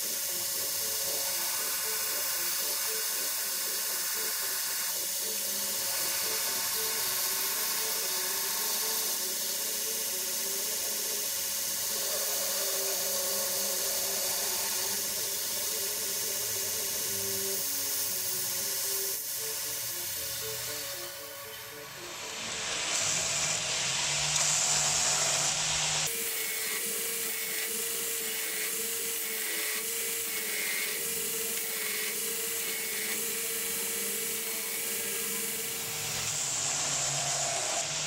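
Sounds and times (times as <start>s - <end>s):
background music: 0.0s - 24.3s
belt grinder grinding steel: 0.0s - 38.0s.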